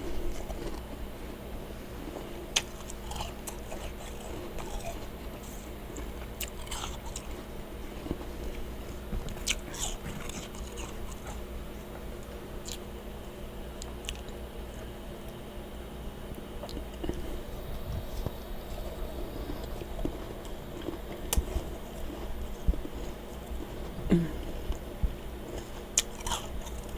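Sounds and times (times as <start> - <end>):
chewing freezer frost: 0.0 - 15.5, 16.2 - 26.9
steady low hum: 0.0 - 26.9.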